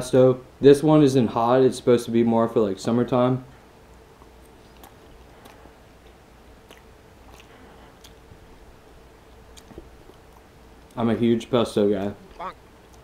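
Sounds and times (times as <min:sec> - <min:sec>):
wet chewing mouth clicks: 0:03.9 - 0:08.5, 0:09.2 - 0:11.0.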